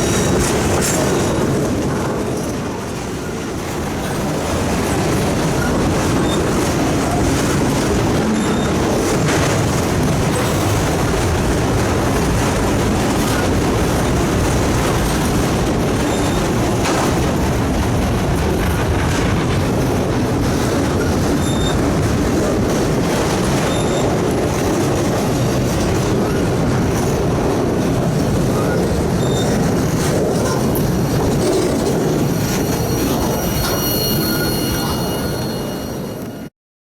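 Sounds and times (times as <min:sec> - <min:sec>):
freight train cars rumbling: 0:00.0 - 0:36.5
high-pitched wheel squeals: 0:21.4 - 0:21.8, 0:32.2 - 0:36.5.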